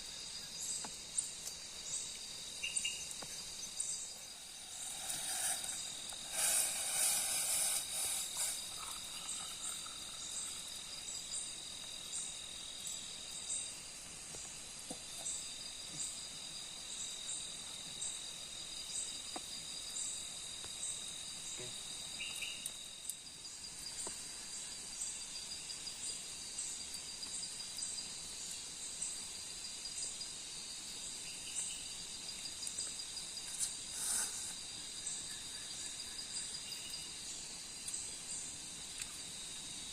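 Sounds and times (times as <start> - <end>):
crickets trilling: 0.0 - 39.9
insect pulsing chirp: 0.0 - 39.9.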